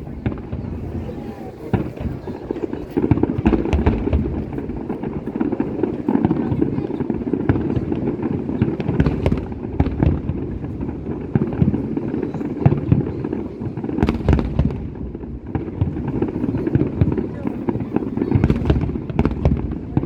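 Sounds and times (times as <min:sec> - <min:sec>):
sharp firework crack: 0:00.0 - 0:13.2
fireworks bangs and crackles: 0:00.0 - 0:20.0.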